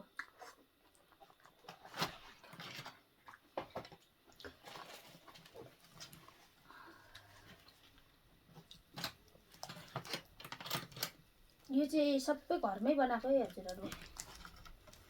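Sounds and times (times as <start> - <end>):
wet chewing: 13.4 - 15.0.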